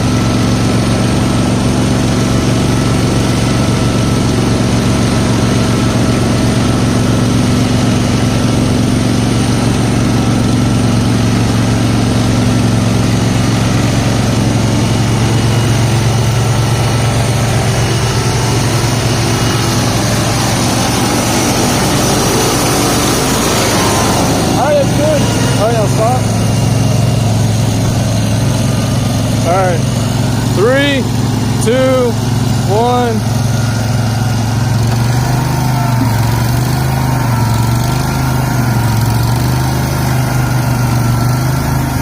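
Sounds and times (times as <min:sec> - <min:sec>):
garden tractor engine running: 0:00.0 - 0:42.0.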